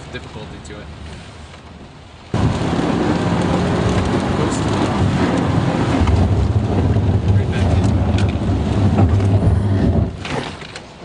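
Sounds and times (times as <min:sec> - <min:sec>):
rain and tyre spray rushing: 0:00.0 - 0:11.0
car engine drone: 0:02.4 - 0:11.0.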